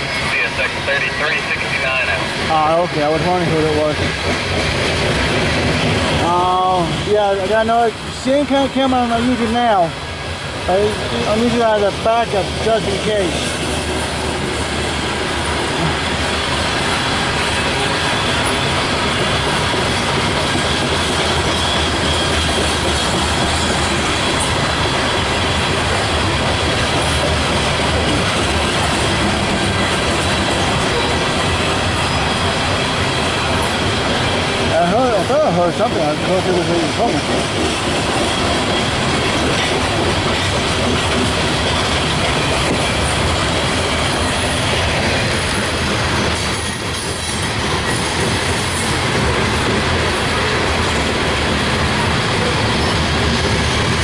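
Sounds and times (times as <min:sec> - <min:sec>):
train railcars rolling past: 0:00.0 - 0:54.0
wheels clicking over rail joints: 0:02.7 - 0:54.0
faint high wheel squeal: 0:21.4 - 0:22.6.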